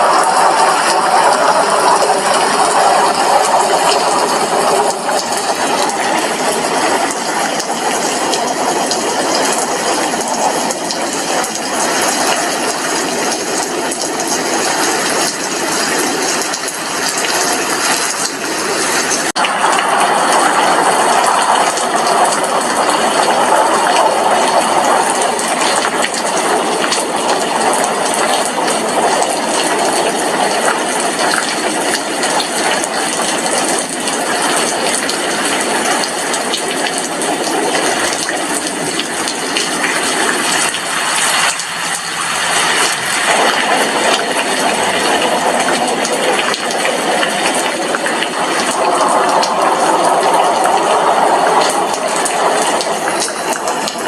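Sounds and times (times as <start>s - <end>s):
rain on window pane: 0.0s - 54.0s.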